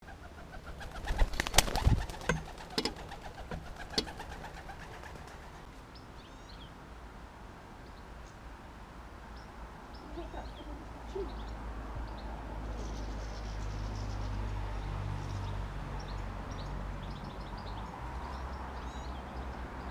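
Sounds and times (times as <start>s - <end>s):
dove cooing: 0.0s - 5.7s
wings flapping: 0.0s - 5.7s
small birds chirping: 0.0s - 6.8s, 9.3s - 19.9s.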